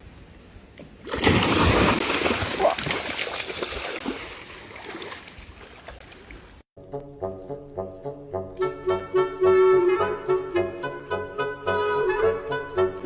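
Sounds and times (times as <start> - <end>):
heavy splash in water: 1.0 - 6.0
water sloshing: 1.0 - 6.6.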